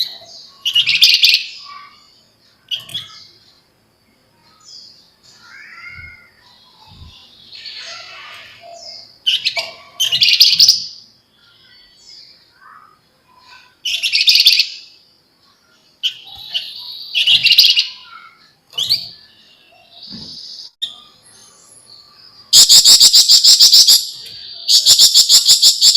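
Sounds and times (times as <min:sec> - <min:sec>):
bird chattering song: 0:00.0 - 0:03.6, 0:04.5 - 0:15.0, 0:15.6 - 0:25.9
soft bird chirps: 0:00.0 - 0:25.9.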